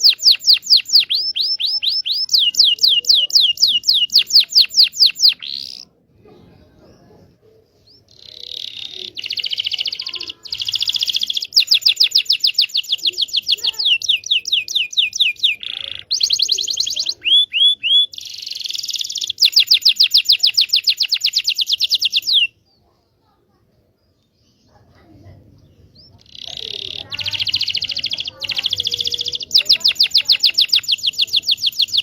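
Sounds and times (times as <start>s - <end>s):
canary singing trills: 0.0s - 6.0s, 7.0s - 22.8s, 24.1s - 32.0s.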